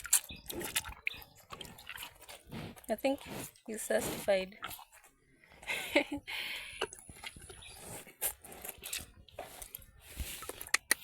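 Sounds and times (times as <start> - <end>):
calf slurping water: 0.0 - 5.0.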